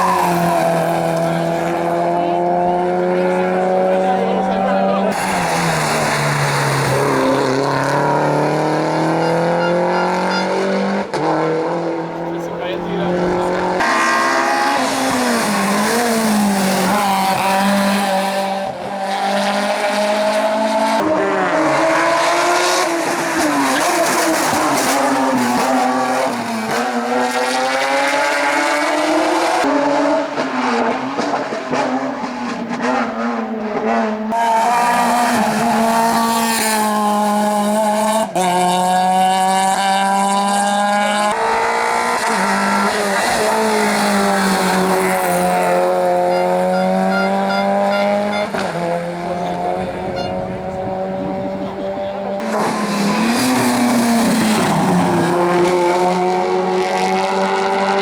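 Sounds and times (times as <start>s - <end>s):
race car engines accelerating: 0.0s - 58.0s.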